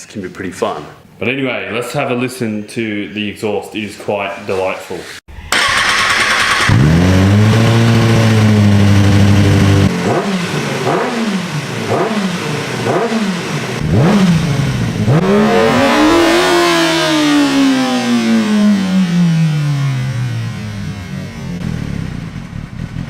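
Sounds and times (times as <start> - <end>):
motorcycle engine revving: 5.5 - 23.0.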